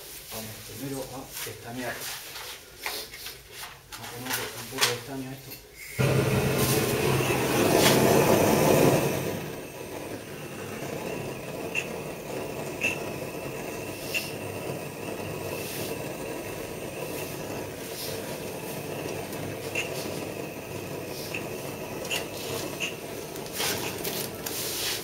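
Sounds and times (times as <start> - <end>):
gas torch hissing: 5.7 - 25.0.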